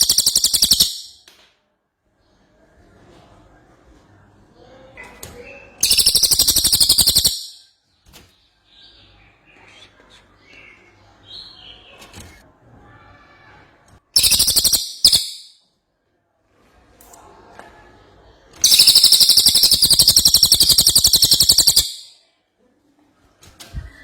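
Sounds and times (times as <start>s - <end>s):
songbird rattling trill: 0.0s - 1.1s, 5.8s - 7.6s, 14.2s - 15.5s, 18.6s - 22.1s.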